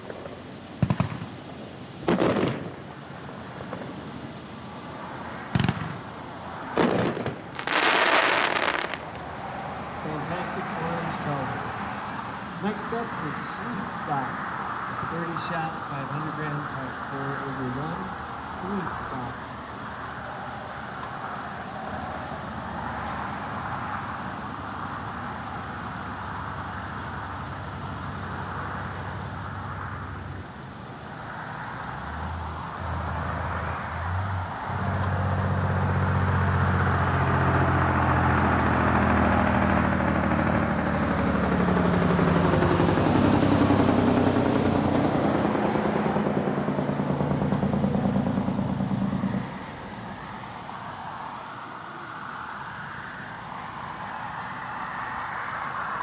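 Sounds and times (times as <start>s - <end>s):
vehicle engine running: 23.4s - 50.7s.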